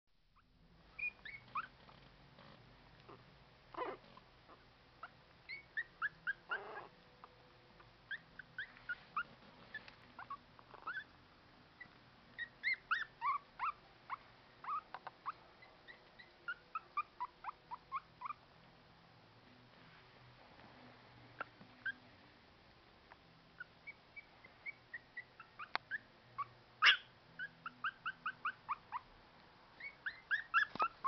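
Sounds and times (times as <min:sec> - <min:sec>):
puppies whimpering and squeaking: 0:01.0 - 0:01.9, 0:03.1 - 0:07.0, 0:08.1 - 0:11.2, 0:11.8 - 0:18.4, 0:21.4 - 0:22.0, 0:23.6 - 0:29.1, 0:29.8 - 0:31.0.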